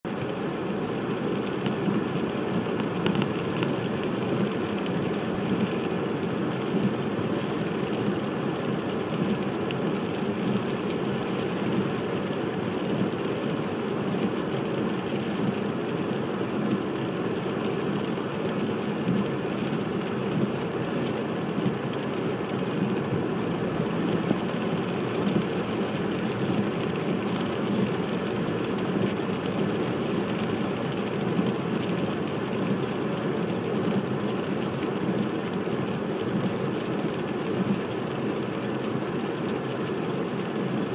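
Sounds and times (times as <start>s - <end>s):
rain: 0.0s - 40.9s
tyres hissing on wet road: 0.1s - 40.9s.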